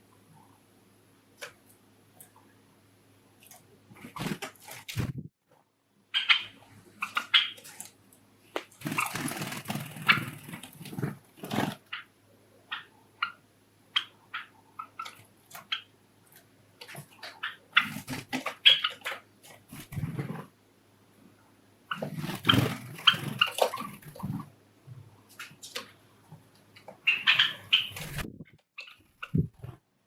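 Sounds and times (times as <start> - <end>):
wings rustling and fluttering: 3.4 - 5.3, 6.2 - 12.1, 14.0 - 20.6, 21.9 - 24.6, 25.2 - 29.8
sparrows chirping: 6.2 - 7.8, 27.0 - 28.2.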